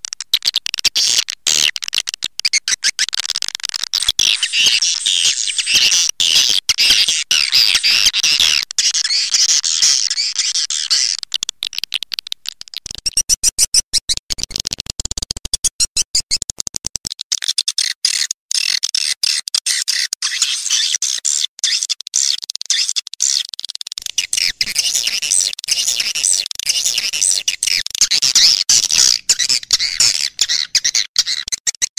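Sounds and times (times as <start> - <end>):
high chirping twitters: 2.2 - 14.6, 22.7 - 31.9.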